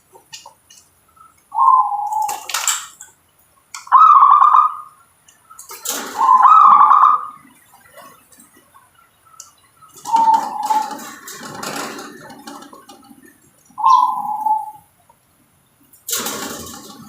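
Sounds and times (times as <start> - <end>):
dove cooing: 1.5 - 2.7, 3.8 - 5.0, 5.8 - 7.6, 9.9 - 14.9.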